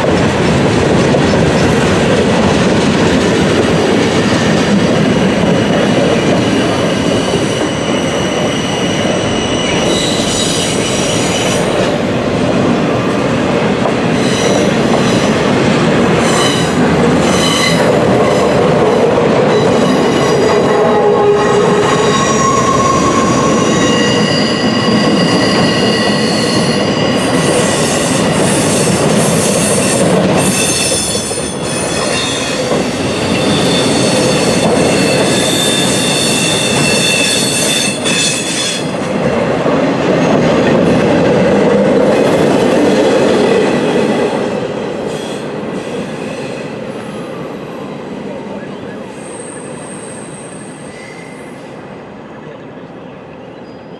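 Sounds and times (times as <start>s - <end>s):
train wheels rumbling on rail: 0.0s - 53.4s
train wheels squealing: 5.1s - 12.1s, 14.1s - 15.5s, 16.1s - 39.1s, 45.0s - 51.9s.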